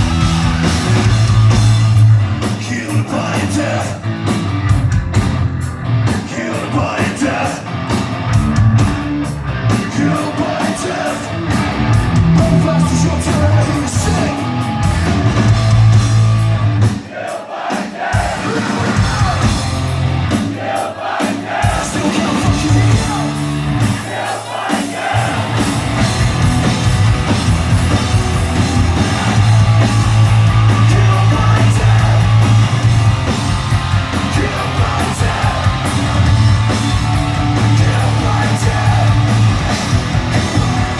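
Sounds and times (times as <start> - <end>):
live hard rock band: 0.0 - 40.9
sung vocals: 2.4 - 4.2, 6.1 - 7.8, 9.7 - 14.6, 17.0 - 25.7, 28.5 - 40.9.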